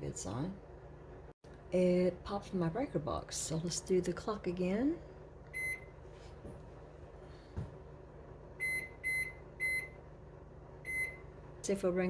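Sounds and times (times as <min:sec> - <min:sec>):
microwave high beeps: 0:05.6 - 0:06.0, 0:08.6 - 0:10.0, 0:10.8 - 0:11.3.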